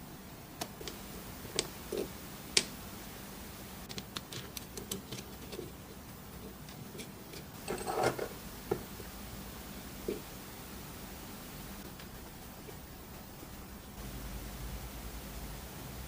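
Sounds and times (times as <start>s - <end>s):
small parts clicking and tapping: 3.8s - 8.9s.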